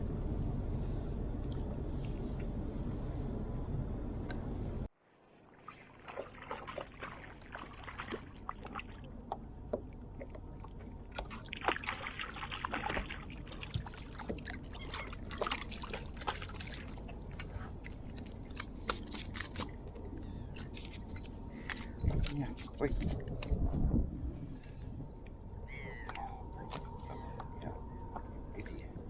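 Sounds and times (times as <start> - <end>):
water splashing and dripping: 5.5 - 19.8.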